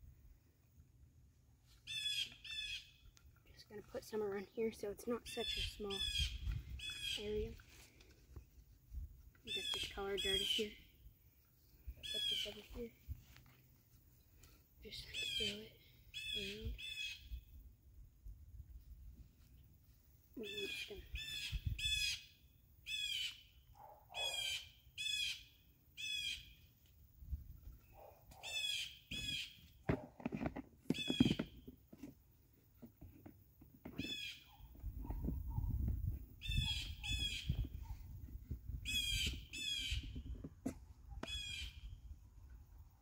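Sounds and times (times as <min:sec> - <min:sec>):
bird giving harsh calls: 0:24.1 - 0:25.4.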